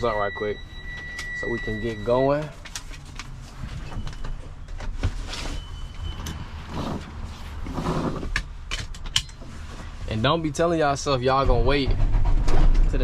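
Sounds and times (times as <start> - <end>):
thin beep: 0.0 - 2.3.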